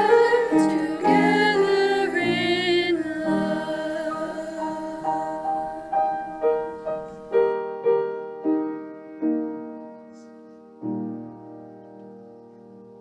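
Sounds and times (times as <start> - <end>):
piano playing: 0.0 - 13.0.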